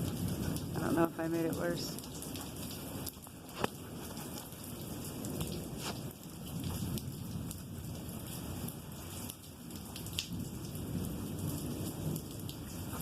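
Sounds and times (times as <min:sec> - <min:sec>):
rolling thunder: 0:00.0 - 0:01.0, 0:04.9 - 0:09.3, 0:10.1 - 0:12.9
rain falling: 0:00.0 - 0:13.0
raindrops ticking: 0:00.0 - 0:13.0.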